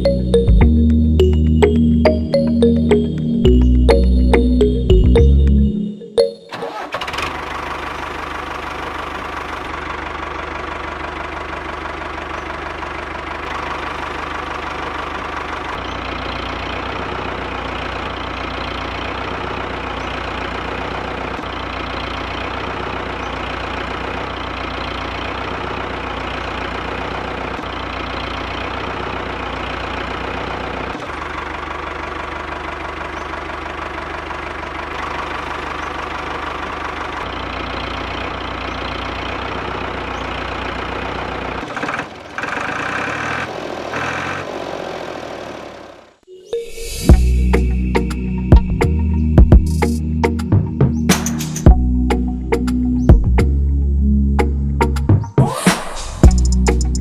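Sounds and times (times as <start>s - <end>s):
small diesel engine idling: 6.5s - 46.3s.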